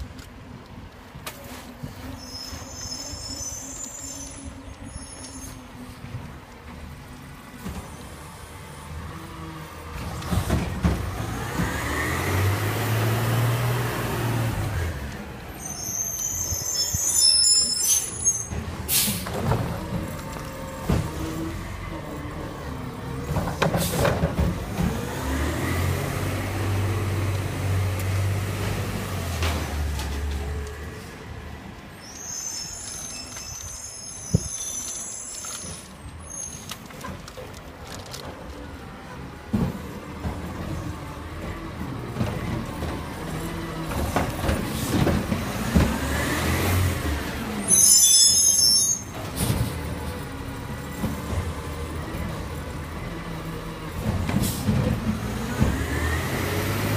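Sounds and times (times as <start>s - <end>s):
high metallic squeals: 2.2s - 5.8s, 15.5s - 18.6s, 31.9s - 36.7s, 47.6s - 49.2s
diesel engine revving: 9.7s - 15.3s, 18.7s - 31.2s, 40.2s - 47.6s, 49.4s - 56.9s.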